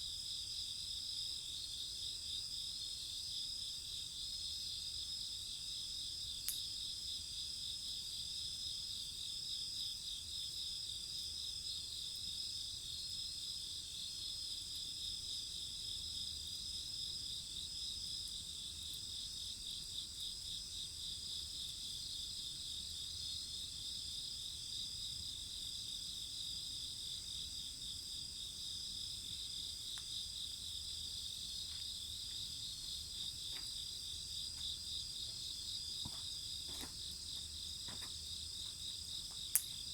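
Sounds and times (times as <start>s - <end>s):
bonfire pops: 39.3s - 39.9s.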